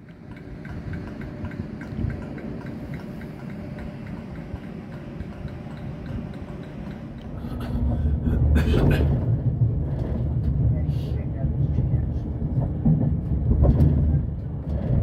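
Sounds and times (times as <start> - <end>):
low rumble: 0.6 - 15.0.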